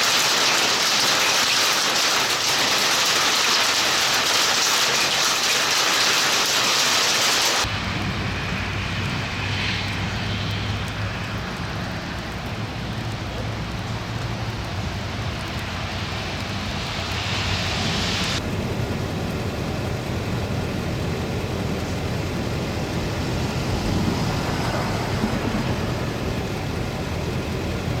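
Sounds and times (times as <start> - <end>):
heavy rain hissing: 0.0 - 28.0.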